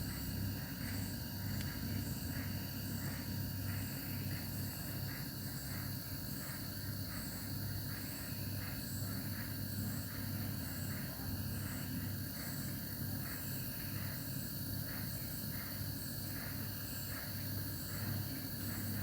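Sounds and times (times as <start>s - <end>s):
compressor humming: 0.0s - 7.1s.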